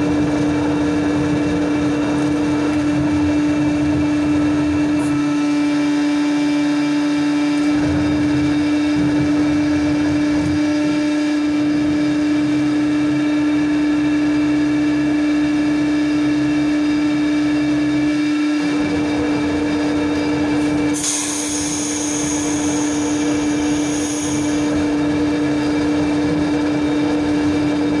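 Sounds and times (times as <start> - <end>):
machinery whine: 18.1 - 28.0
high hissing: 20.6 - 25.0.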